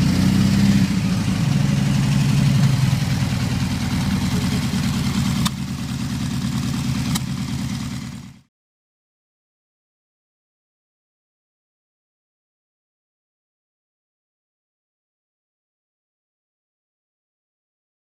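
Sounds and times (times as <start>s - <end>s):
car engine running: 0.0s - 8.5s
sharp clicks: 5.3s - 5.6s, 7.0s - 7.4s.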